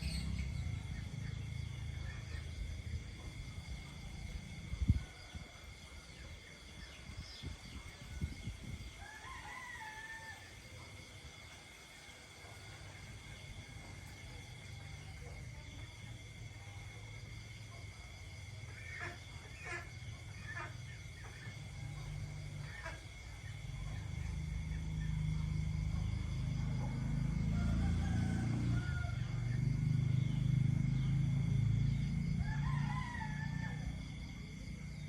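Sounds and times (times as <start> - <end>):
low rumble: 0.0 - 5.0
distant rooster crowing: 0.0 - 11.1, 23.6 - 35.0
insects trilling: 0.0 - 35.0
short insect calls: 0.0 - 35.0.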